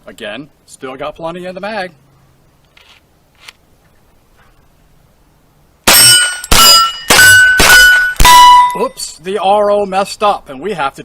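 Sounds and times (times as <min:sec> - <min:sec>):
rifle shots: 0:05.9 - 0:08.8
steel target clanging: 0:05.9 - 0:09.0.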